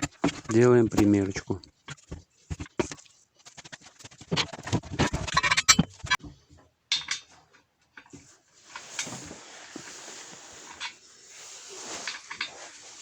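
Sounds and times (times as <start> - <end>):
metal parts clattering: 4.4 - 6.2.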